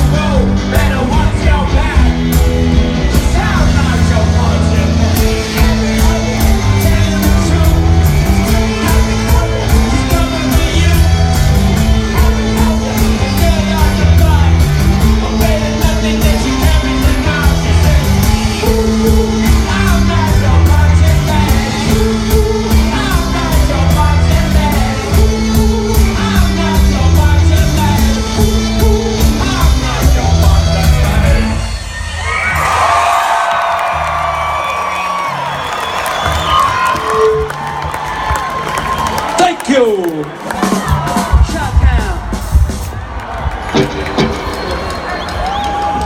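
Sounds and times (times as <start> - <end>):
drum beat: 0.0 - 31.5, 36.3 - 46.0
bass line: 0.0 - 39.5
guitars: 0.0 - 39.5, 43.0 - 46.0
person singing: 3.1 - 31.7.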